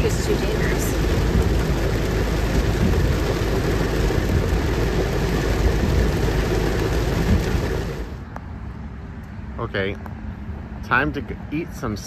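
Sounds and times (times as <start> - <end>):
rain beating on a car: 0.0 - 8.2
car running noise: 0.0 - 8.4.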